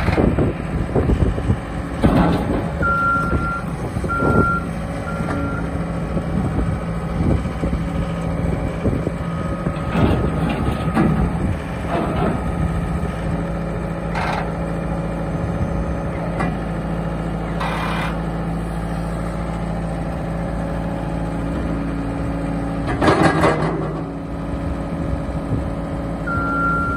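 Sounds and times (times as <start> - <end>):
diesel engine running: 0.0 - 26.9
reversing alarm beeping: 2.8 - 5.8, 26.2 - 26.9.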